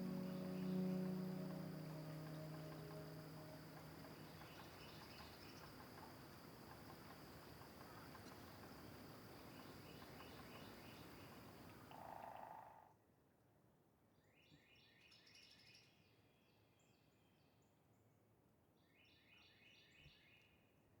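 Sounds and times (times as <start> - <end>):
brief low note: 0.0 - 5.0
high bird song: 0.0 - 5.8
insect chirping: 0.0 - 12.6.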